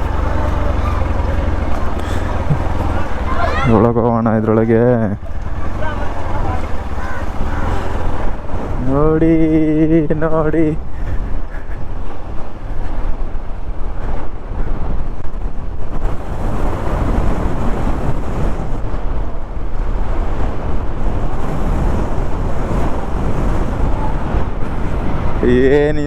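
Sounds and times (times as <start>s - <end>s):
motorcycle engine: 0.0s - 9.0s
road noise: 0.0s - 26.0s
wind buffeting microphone: 0.0s - 26.0s.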